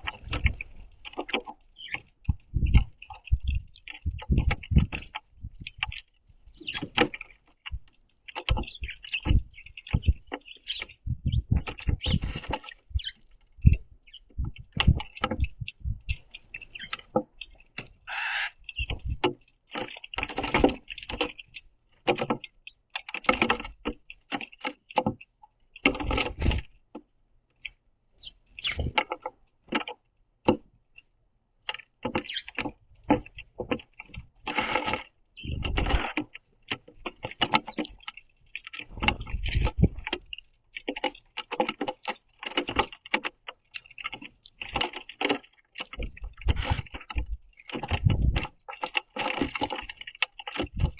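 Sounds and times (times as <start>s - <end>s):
pecking and scrabbling on wood: 0.0s - 50.9s
sparrows chirping: 1.6s - 19.2s, 28.2s - 28.9s, 32.2s - 32.6s, 35.3s - 35.7s
wing flutters: 6.6s - 19.3s.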